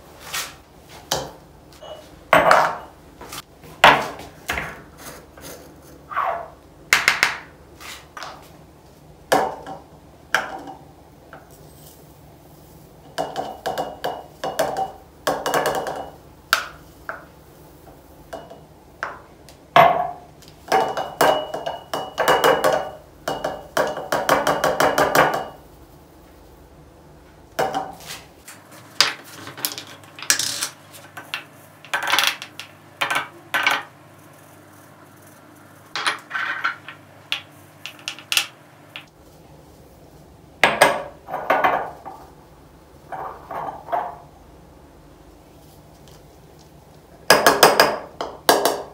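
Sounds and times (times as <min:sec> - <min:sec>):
glass jars clinking: 0:19.8 - 0:24.2, 0:36.0 - 0:39.1.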